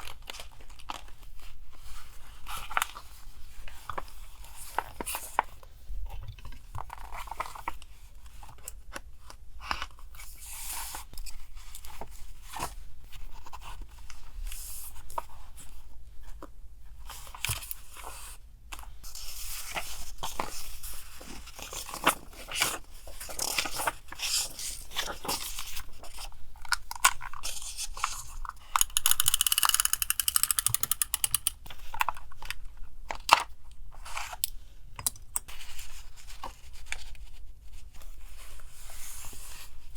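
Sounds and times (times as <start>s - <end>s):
paper rustling and crinkling: 17.1s - 28.8s.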